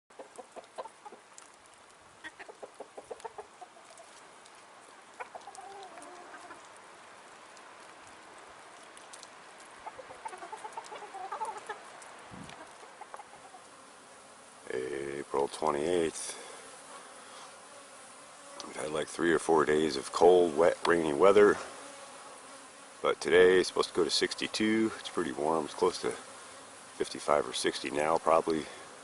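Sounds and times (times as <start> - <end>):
chickens clucking: 0.1 - 1.4, 2.2 - 4.2, 4.9 - 6.8, 9.7 - 13.7
faint steady hiss: 0.1 - 29.0.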